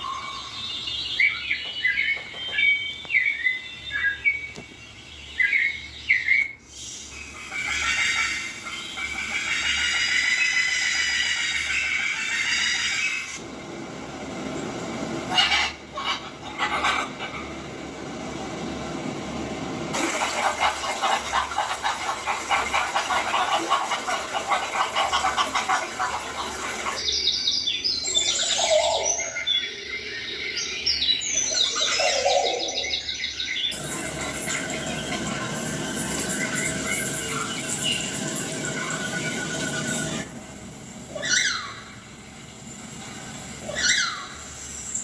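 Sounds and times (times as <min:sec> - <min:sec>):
small birds chirping: 0:20.0 - 0:40.3.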